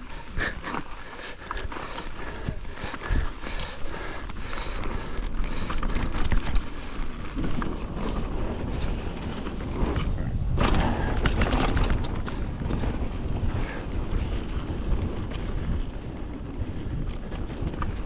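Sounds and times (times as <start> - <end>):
bike rattling over dirt: 0.0 - 18.0
wind buffeting microphone: 0.0 - 18.0.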